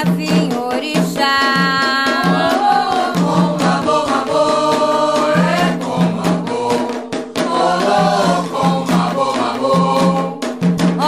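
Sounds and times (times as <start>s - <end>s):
hand drums and percussion: 0.0s - 11.0s
group of voices chanting: 2.2s - 10.4s.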